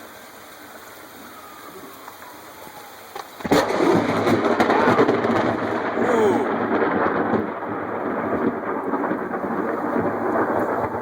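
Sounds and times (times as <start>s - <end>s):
light rain: 0.0s - 11.0s
thunder crack and rumble: 3.2s - 11.0s.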